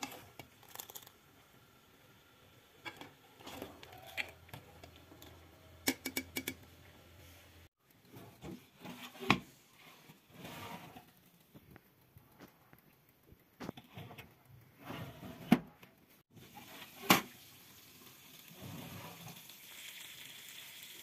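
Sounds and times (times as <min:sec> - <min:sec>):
kitchen items clicking and tapping: 0:02.8 - 0:06.9.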